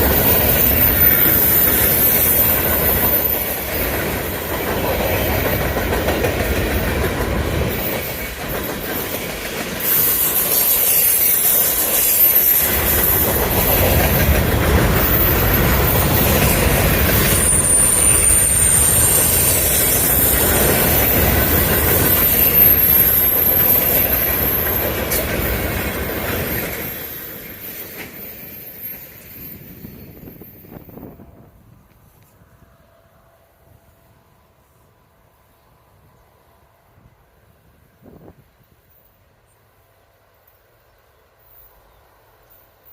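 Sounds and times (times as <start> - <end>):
train wheels clattering: 0.0 - 31.1
high-pitched wheel squeal: 9.8 - 14.0, 15.0 - 25.2.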